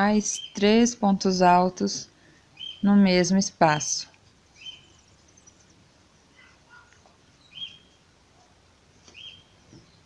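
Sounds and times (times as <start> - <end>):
bird chirping faintly: 2.5 - 3.3, 4.2 - 10.0.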